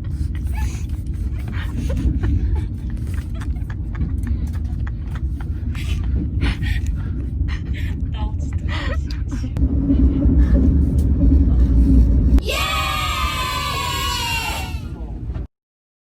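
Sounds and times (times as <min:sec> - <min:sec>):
vehicle rumble from inside cabin: 0:00.0 - 0:12.6.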